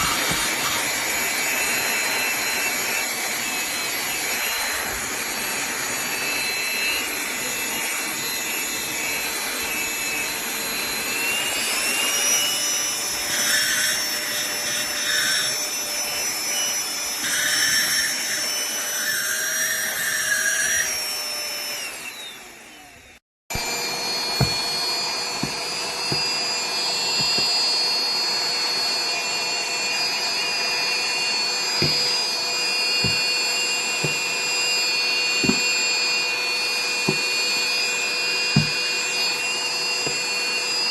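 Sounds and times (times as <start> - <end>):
handheld vacuum cleaner whine: 0.0 - 40.9.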